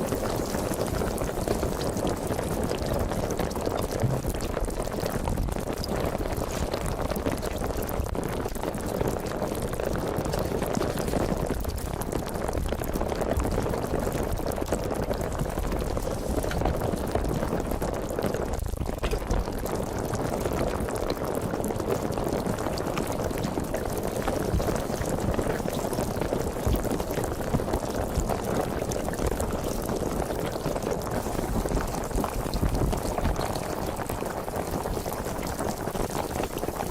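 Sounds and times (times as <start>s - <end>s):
sparkling water fizzing: 0.0s - 36.9s.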